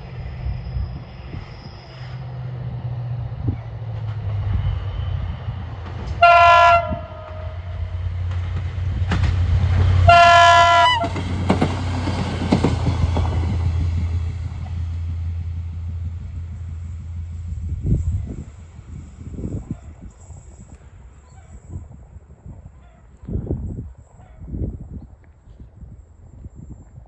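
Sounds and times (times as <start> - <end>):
train horn blasts: 6.1 - 7.9, 10.0 - 11.2.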